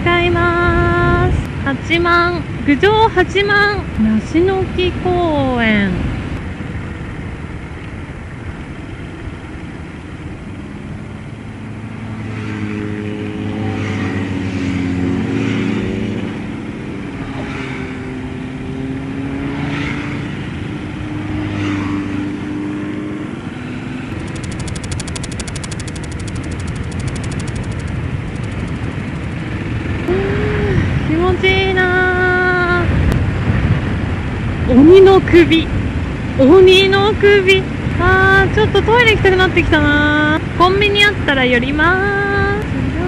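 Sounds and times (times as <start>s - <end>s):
wind noise: 23.4s - 41.3s
motorcycle engine running: 23.6s - 31.6s.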